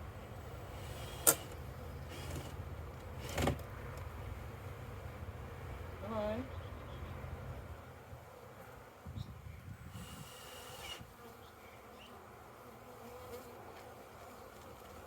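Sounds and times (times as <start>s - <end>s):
bee buzzing past close: 11.0s - 15.0s.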